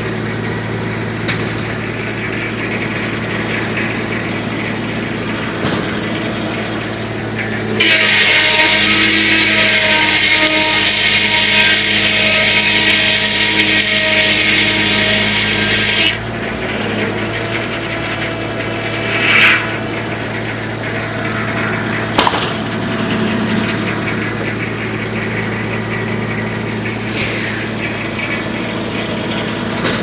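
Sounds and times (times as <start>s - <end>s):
circular saw blade cutting log: 0.0s - 30.0s
tractor engine running: 0.0s - 30.0s
brief rush of noise: 18.8s - 19.9s.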